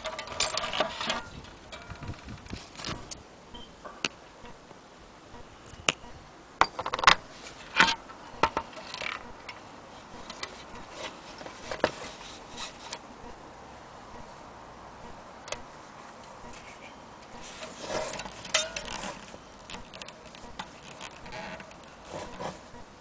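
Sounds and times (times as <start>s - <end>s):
objects being handled: 0.0s - 3.2s, 5.8s - 13.1s, 15.5s - 22.8s.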